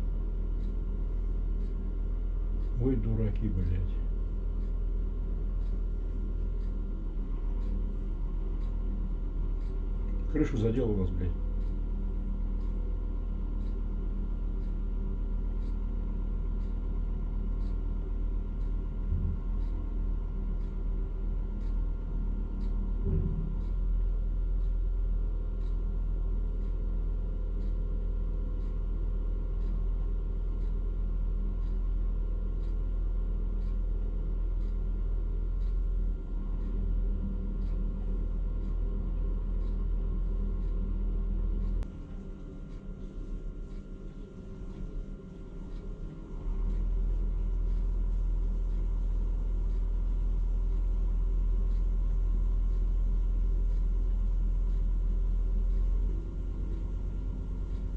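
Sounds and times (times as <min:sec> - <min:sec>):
faint regular ticking: 0:00.0 - 0:57.9.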